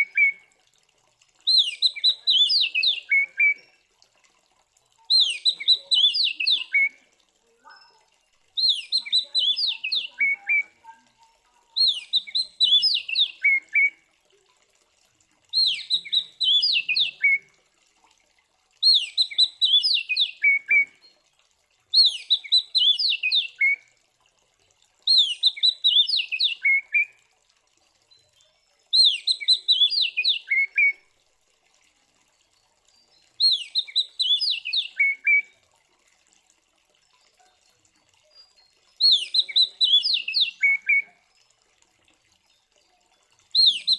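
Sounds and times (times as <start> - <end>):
bird whistling song: 0.0 - 0.4, 1.5 - 3.7, 5.1 - 7.0, 8.6 - 10.8, 11.8 - 14.0, 15.5 - 17.5, 18.8 - 21.1, 21.9 - 23.8, 25.1 - 27.2, 28.9 - 31.0, 33.4 - 35.6, 38.4 - 41.2, 43.5 - 43.9.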